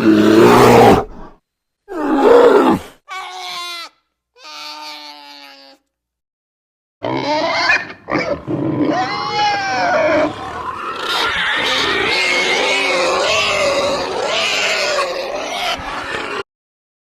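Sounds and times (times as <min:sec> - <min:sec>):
animal roars and grunts: 0:00.0 - 0:03.0, 0:07.0 - 0:16.5.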